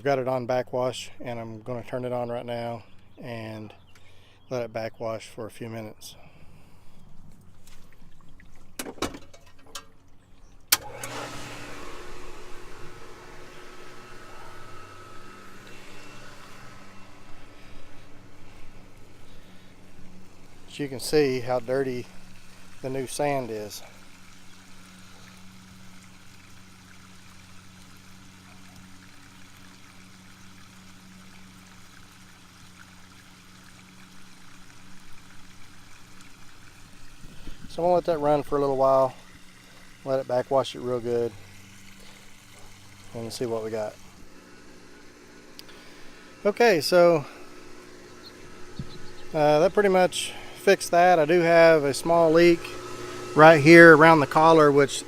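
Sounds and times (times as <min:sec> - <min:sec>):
pool pump motor humming: 0:00.0 - 0:55.0
water rushing through filter: 0:06.7 - 0:55.0
pump switch click: 0:10.7 - 0:11.6.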